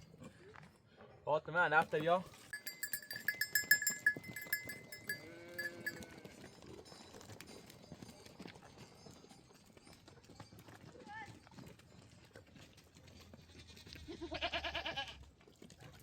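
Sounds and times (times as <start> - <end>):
livestock bells jingling: 1.9 - 12.3
sheep or goat bleating: 2.7 - 6.4, 13.6 - 15.3.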